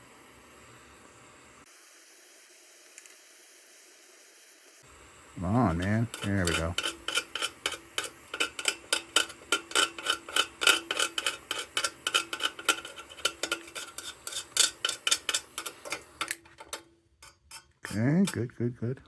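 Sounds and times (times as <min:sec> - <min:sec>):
metal tool scraping metal: 0:05.5 - 0:18.5.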